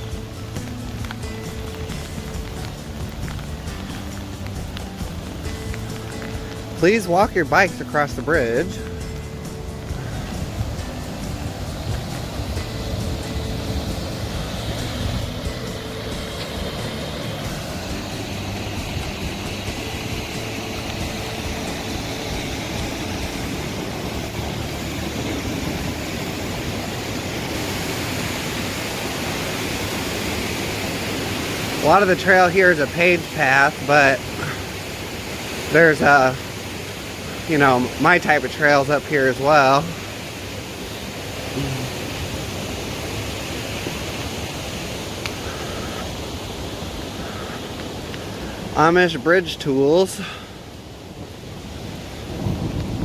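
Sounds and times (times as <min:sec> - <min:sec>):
water rushing: 0:00.0 - 0:53.0.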